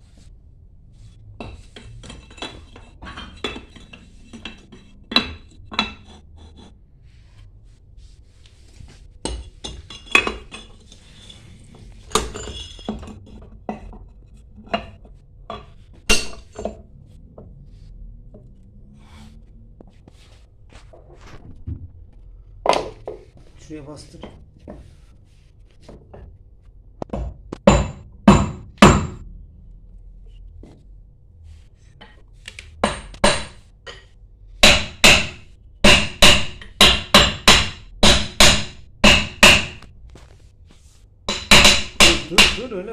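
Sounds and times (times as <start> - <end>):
metal parts and tools clinking: 1.5 - 6.2, 9.3 - 16.8.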